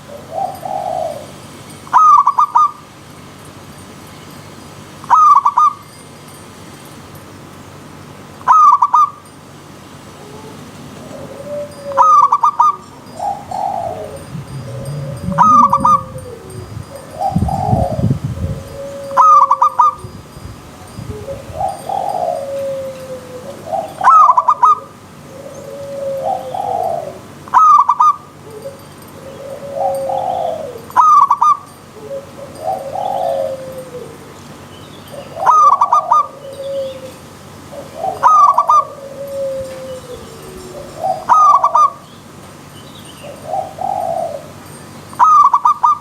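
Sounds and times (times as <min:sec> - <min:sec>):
dove cooing: 0:00.0 - 0:02.8, 0:10.2 - 0:20.0, 0:21.1 - 0:34.4, 0:35.1 - 0:42.0, 0:43.2 - 0:44.6, 0:45.2 - 0:46.0.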